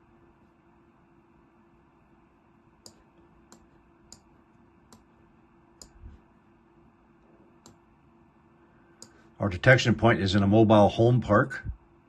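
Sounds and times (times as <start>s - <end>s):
faint steady hum: 0.0s - 12.0s
computer mouse clicks: 2.8s - 4.3s, 5.8s - 6.0s.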